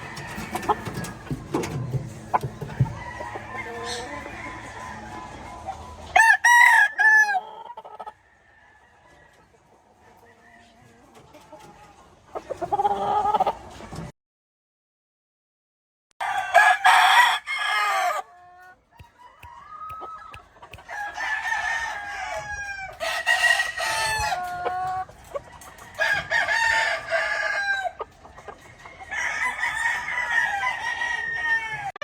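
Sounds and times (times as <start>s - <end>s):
roosters crowing: 0.0s - 9.0s, 16.2s - 32.0s
roosters clucking: 0.0s - 14.1s, 16.2s - 32.0s.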